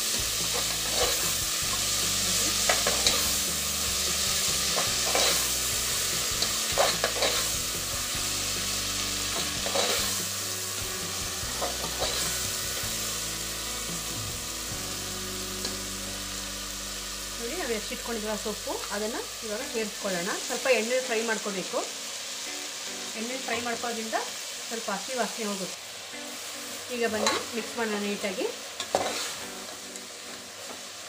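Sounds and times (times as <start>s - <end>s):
vegetables sizzling in hot oil: 0.0s - 31.0s
metal ladle scraping a pot: 9.6s - 10.1s, 28.8s - 29.4s.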